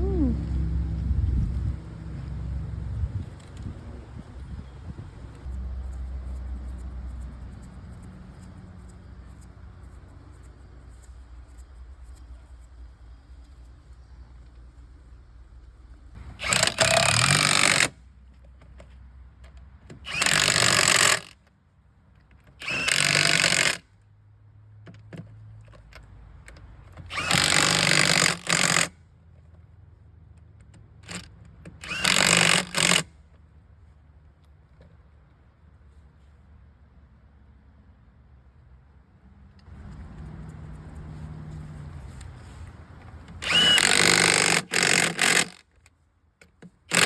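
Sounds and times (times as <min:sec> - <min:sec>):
impact wrench bursts: 0:16.3 - 0:18.0, 0:20.0 - 0:21.4, 0:22.6 - 0:23.8, 0:27.1 - 0:28.9, 0:31.1 - 0:33.1, 0:43.4 - 0:45.8.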